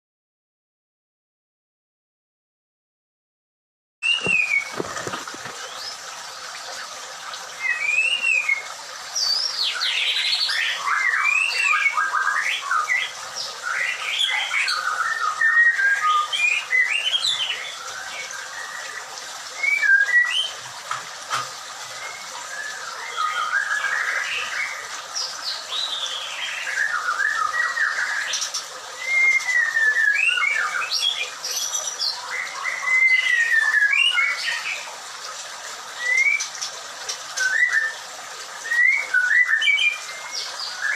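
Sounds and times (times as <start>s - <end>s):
bird singing whistled notes: 4.0s - 5.9s, 29.0s - 34.4s, 38.6s - 40.9s.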